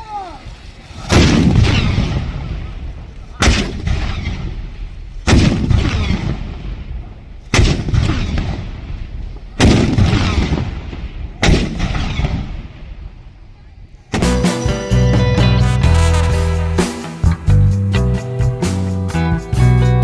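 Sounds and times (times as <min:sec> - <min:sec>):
cannon blasts with rumble: 0:01.0 - 0:13.3.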